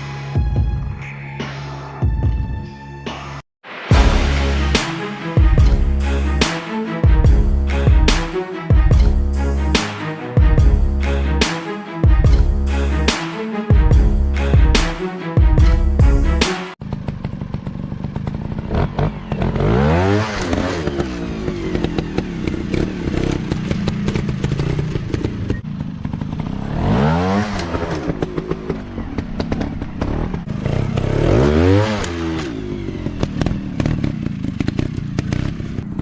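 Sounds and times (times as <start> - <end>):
dirt bike engine revving: 16.4 - 36.0.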